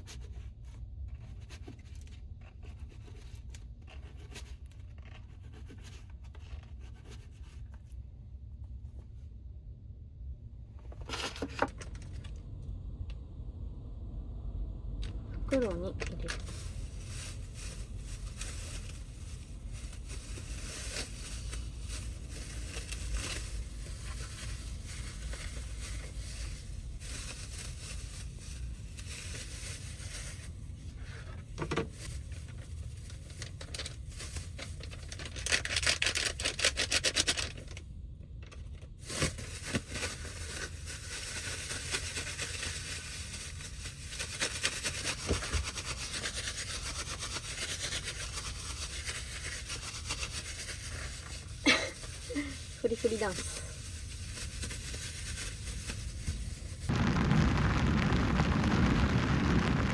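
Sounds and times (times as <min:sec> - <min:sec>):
plastic bag crinkling: 0:15.5 - 0:37.8
dense crackling: 0:56.8 - 0:59.9
rain on a van roof: 0:56.9 - 0:59.9.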